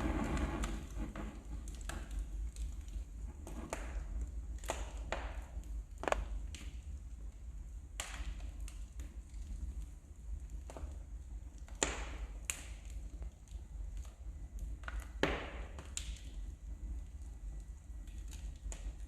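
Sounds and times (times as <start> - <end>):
steady low rumble: 0.0 - 4.7
wood fire crackling and popping: 0.0 - 19.0.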